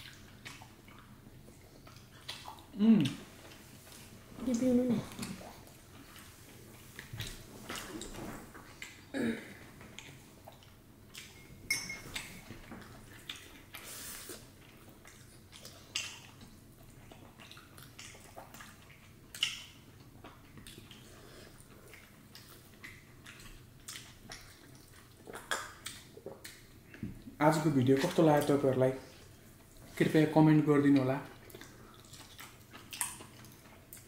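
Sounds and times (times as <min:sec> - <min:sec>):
dishes and utensils clinking: 0:11.3 - 0:12.5.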